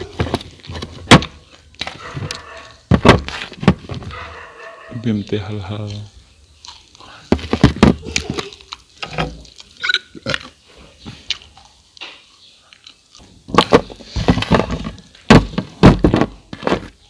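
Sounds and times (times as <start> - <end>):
crunching crispy rice crackers: 5.8 - 13.4.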